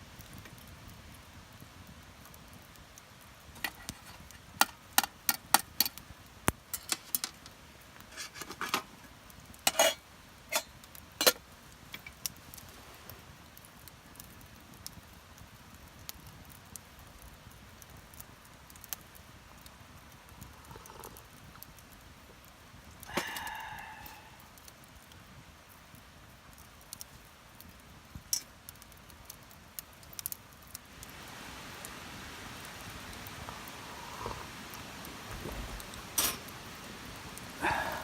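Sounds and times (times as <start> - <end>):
metal cookware clinking: 9.7 - 11.4.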